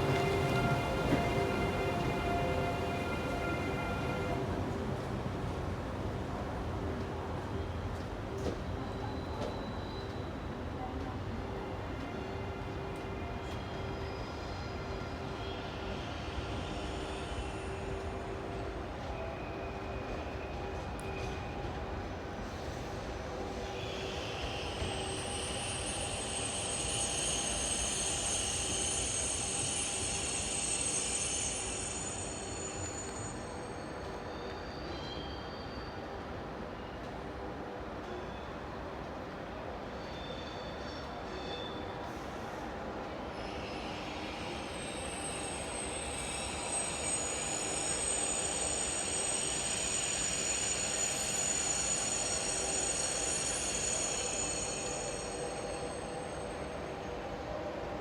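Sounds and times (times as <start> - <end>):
train rumbling: 0.0 - 35.0.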